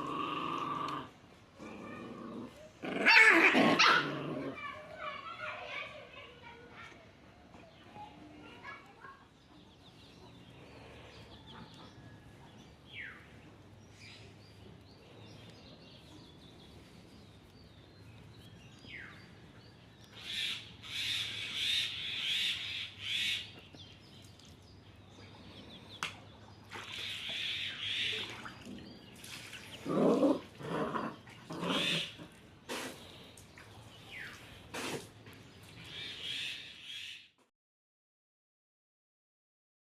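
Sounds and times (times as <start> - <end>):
puppies yelping: 2.8 - 4.5
birds chirping: 7.6 - 37.4.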